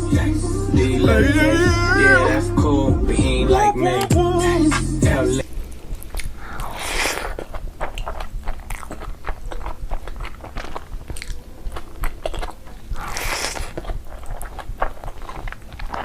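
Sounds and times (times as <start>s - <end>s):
person chewing food: 5.4s - 16.0s
crunchy bite: 6.0s - 16.0s.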